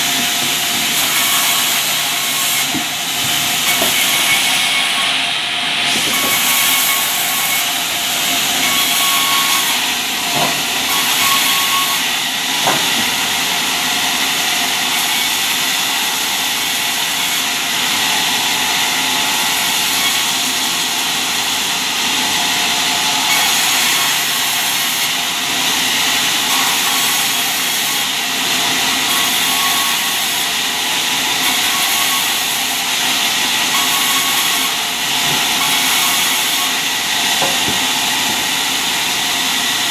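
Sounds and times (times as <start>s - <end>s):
saw cutting timber: 0.0s - 39.9s.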